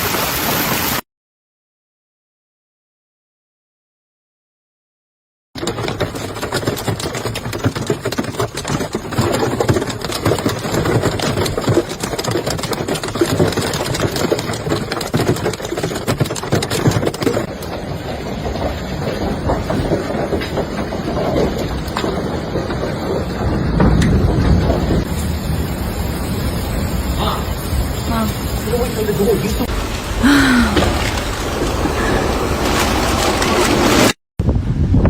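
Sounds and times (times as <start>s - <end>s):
hailstones clattering: 5.6s - 34.2s
roar of downpour: 5.7s - 34.1s.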